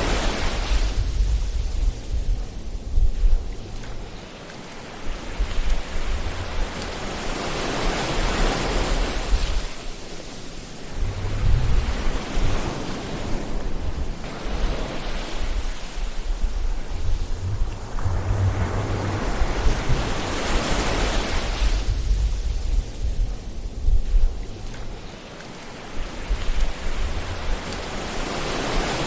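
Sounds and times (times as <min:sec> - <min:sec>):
ocean waves breaking on shore: 0:00.0 - 0:29.0
gusty low rumble: 0:00.8 - 0:04.2, 0:10.8 - 0:25.2, 0:25.9 - 0:28.0.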